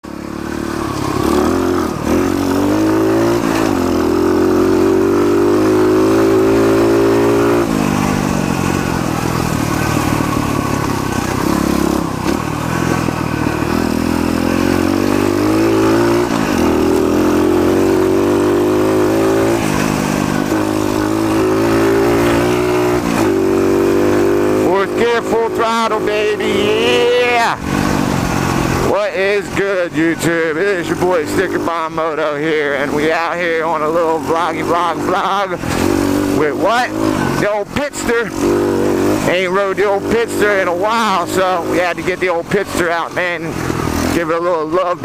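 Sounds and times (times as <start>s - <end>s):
pit bike engine revving: 0.0s - 45.0s.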